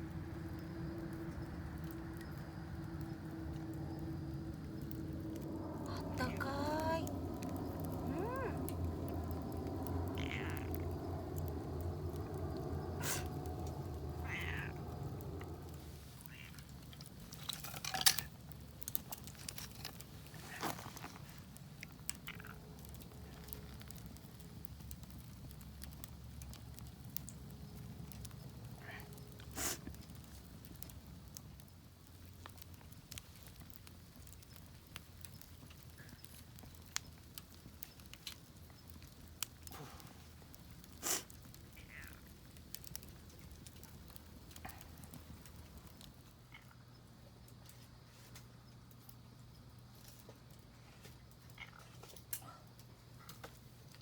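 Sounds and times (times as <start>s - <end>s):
sharp fire snaps: 0.0s - 54.0s
wood fire crackling: 0.0s - 54.0s.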